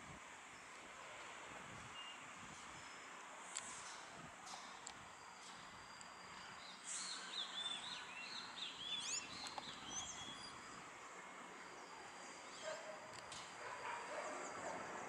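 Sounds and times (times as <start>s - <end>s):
small bird chirping: 5.9s - 10.8s.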